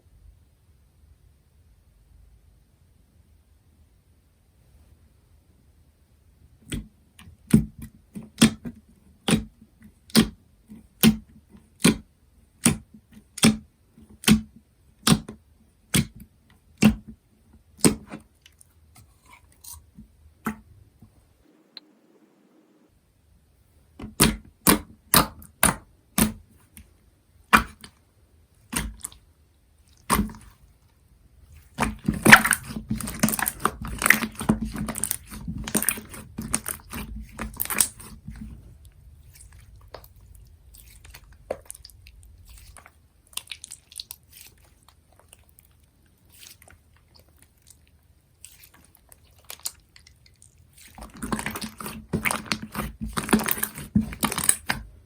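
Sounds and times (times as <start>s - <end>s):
slime crackling and squishing: 29.8s - 30.8s, 31.4s - 55.0s.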